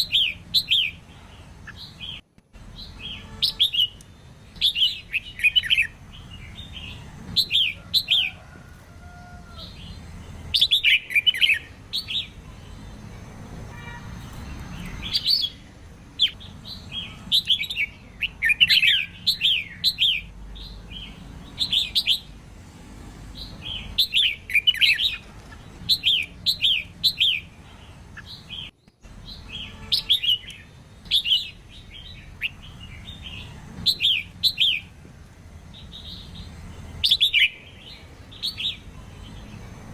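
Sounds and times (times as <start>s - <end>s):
bird singing whistled notes: 2.8s - 8.2s, 17.0s - 22.3s.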